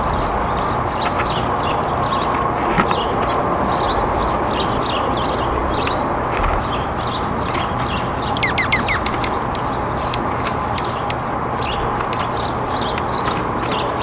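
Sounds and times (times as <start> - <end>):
small songbirds chirping: 0.0 - 14.0
falling whistled bird notes: 7.0 - 9.4
sharp clicks: 7.1 - 11.3.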